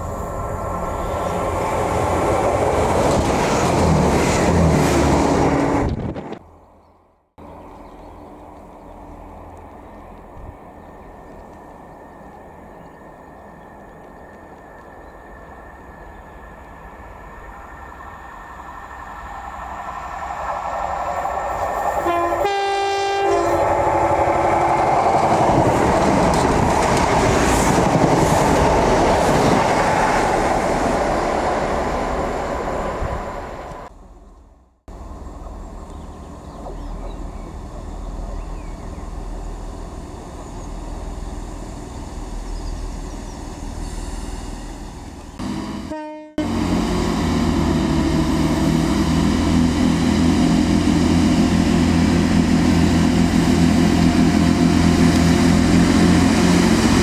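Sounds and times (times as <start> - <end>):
train engine and wheels on rails: 0.0 - 57.0
train horn blast: 22.0 - 24.4, 45.4 - 47.1
diesel hum: 33.6 - 57.0.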